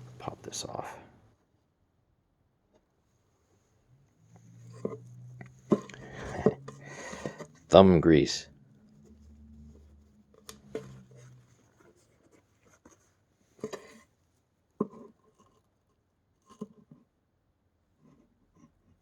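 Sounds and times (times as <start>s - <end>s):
hands clicking and scraping parts: 4.4s - 7.8s, 13.6s - 14.0s.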